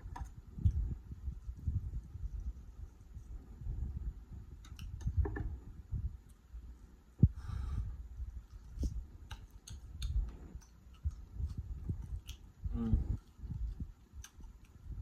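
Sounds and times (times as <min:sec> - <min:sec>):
chewing steak: 0:08.4 - 0:14.9
person humming: 0:12.7 - 0:13.2.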